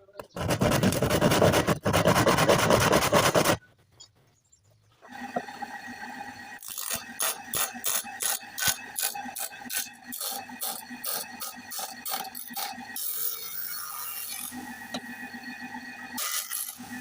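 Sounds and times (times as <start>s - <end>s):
file rasping on saw teeth: 0.3s - 3.6s.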